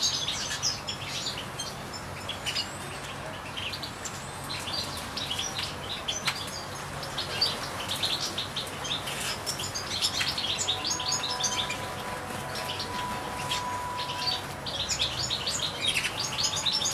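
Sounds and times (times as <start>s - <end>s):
goldfinches twittering: 3.5s - 16.9s.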